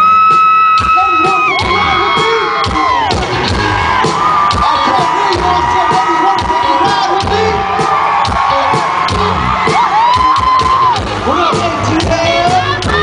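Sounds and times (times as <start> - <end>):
crowd cheering and screaming: 0.0 - 13.0
live concert music: 0.0 - 13.0.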